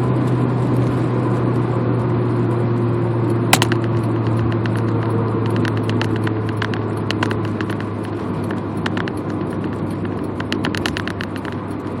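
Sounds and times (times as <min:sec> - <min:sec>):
car engine droning: 0:00.0 - 0:12.0
road and wind noise: 0:00.0 - 0:12.0
sharp clicks: 0:03.6 - 0:12.0.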